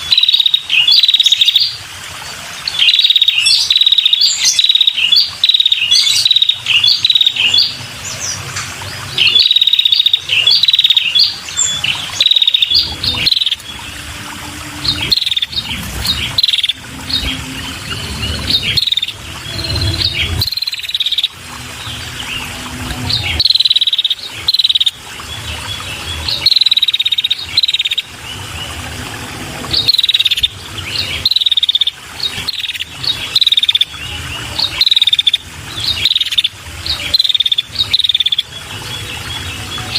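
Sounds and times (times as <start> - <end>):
bird chirping: 0.0 - 1.8, 2.7 - 8.4, 9.0 - 14.0, 14.7 - 28.4.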